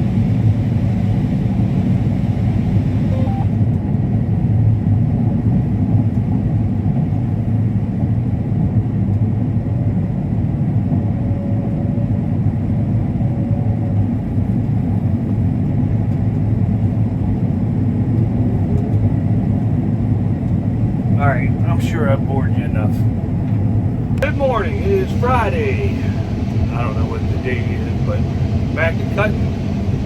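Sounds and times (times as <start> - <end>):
combine harvester rumbling: 18.3 - 30.0.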